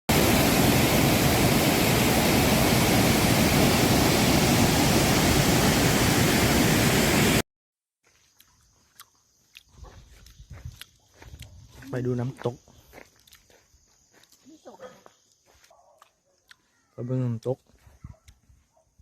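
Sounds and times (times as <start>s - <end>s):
waterfall rushing: 0.1s - 7.4s.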